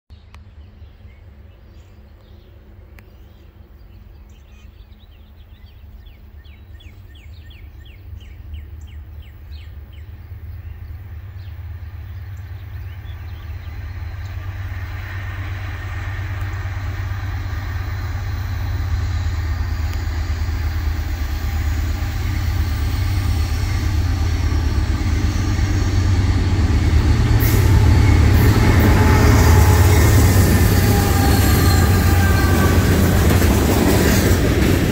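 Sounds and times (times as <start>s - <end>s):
diesel locomotive engine drone: 0.1s - 34.9s
train wheel and rail noise: 0.2s - 34.9s.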